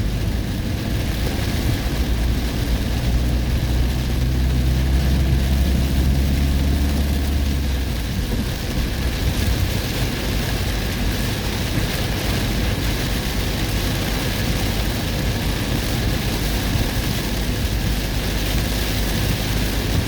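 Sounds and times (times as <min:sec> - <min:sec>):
heavy rain: 0:00.0 - 0:20.0
vehicle driving rumble: 0:00.0 - 0:20.0.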